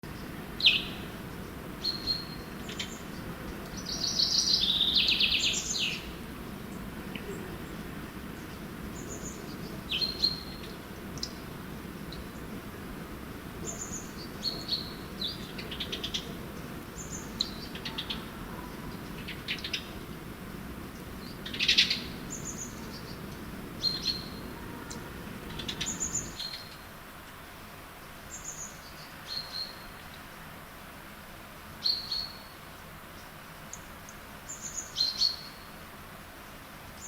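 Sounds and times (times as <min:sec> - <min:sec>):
low steady rumble: 0:00.0 - 0:26.4
finch chirps and trills: 0:00.1 - 0:06.1, 0:06.7 - 0:11.5, 0:13.6 - 0:20.0, 0:21.0 - 0:26.8, 0:34.5 - 0:35.7.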